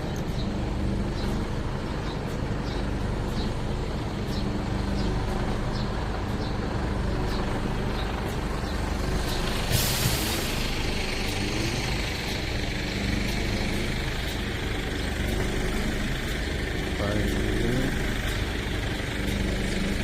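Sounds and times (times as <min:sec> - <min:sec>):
faint regular ticking: 0:00.0 - 0:09.7, 0:10.6 - 0:20.0
diesel engine running: 0:00.0 - 0:20.0
air brake hiss: 0:09.6 - 0:10.8.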